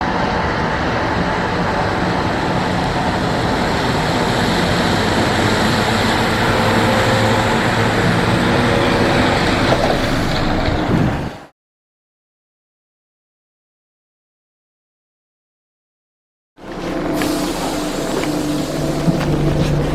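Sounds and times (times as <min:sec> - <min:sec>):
bus diesel engine running: 0:00.0 - 0:11.5, 0:16.6 - 0:19.9
road and body noise: 0:05.0 - 0:11.5.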